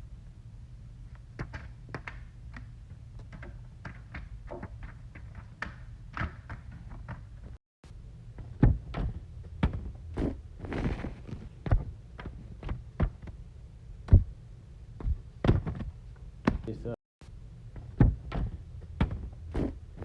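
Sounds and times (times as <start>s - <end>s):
steady low hum: 0.0s - 5.0s, 7.9s - 20.0s
knocks and thumps: 15.0s - 16.7s, 17.8s - 20.0s.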